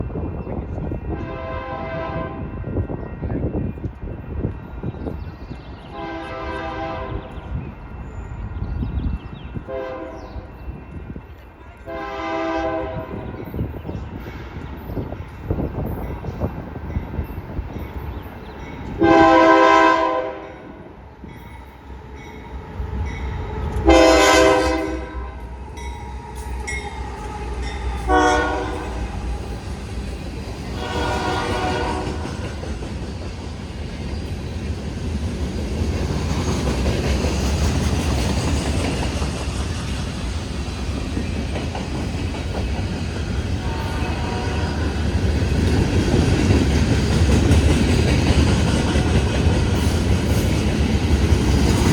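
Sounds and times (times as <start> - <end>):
train rumbling past: 0.0 - 51.9
diesel locomotive horn: 1.1 - 2.7, 5.9 - 7.4, 9.6 - 10.6, 11.8 - 13.5, 19.0 - 20.9, 23.8 - 25.5, 27.1 - 29.5, 30.7 - 32.4, 43.6 - 45.3
rail clatter: 21.2 - 51.9.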